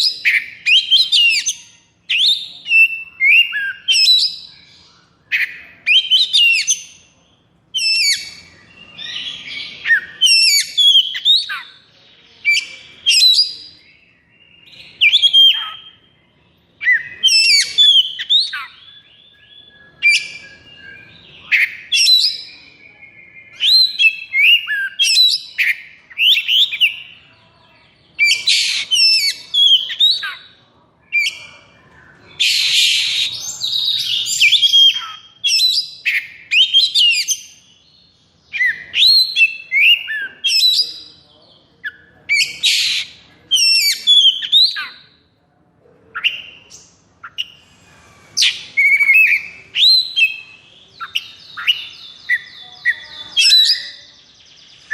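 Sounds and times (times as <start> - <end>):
bird singing whistled phrases: 0.0 - 7.1, 7.7 - 11.8, 12.4 - 27.2, 28.2 - 30.5, 31.1 - 37.9, 38.5 - 41.2, 48.4 - 54.9
harsh raspy bird notes: 27.9 - 37.8, 46.2 - 54.1.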